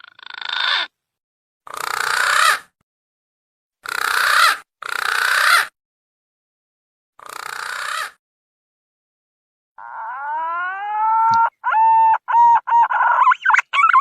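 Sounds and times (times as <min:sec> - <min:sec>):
pigeon raspy calls: 0:00.0 - 0:00.9, 0:01.7 - 0:02.7, 0:03.8 - 0:05.7, 0:07.2 - 0:08.2, 0:09.8 - 0:14.0.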